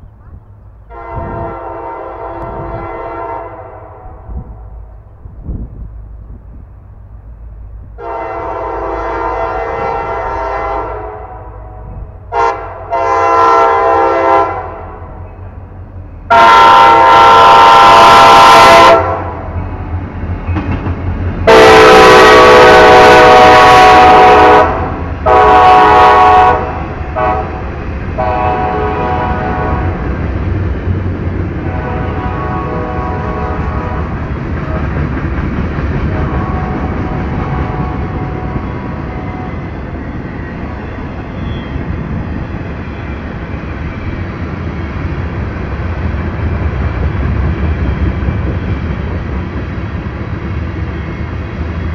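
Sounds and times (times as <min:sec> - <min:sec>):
locomotive rumble: 0:00.0 - 0:51.9
train air horn blasts: 0:00.9 - 0:04.8, 0:08.0 - 0:15.2, 0:16.3 - 0:19.6, 0:21.4 - 0:30.0, 0:31.6 - 0:34.9, 0:36.1 - 0:39.7.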